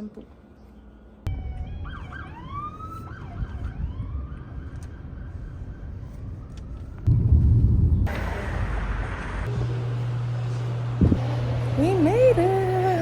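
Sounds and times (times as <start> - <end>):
street traffic rumble: 0.0 - 13.0
emergency siren: 1.3 - 7.1
loud low rumble: 7.1 - 12.8.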